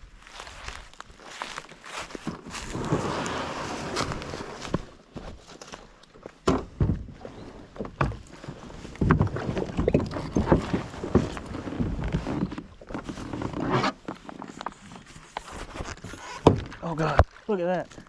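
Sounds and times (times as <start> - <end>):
knocks and scrapes on kayak hull: 2.2 - 5.4, 6.5 - 17.3.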